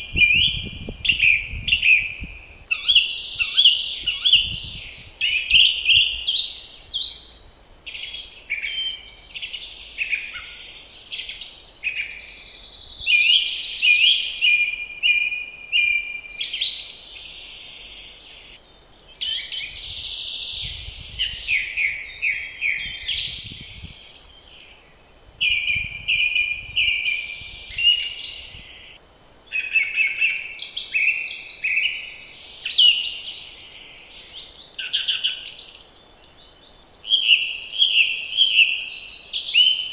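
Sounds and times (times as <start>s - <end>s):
low wind rumble: 0.0s - 2.8s, 3.8s - 6.4s, 19.7s - 29.0s
songbirds singing: 0.0s - 39.9s.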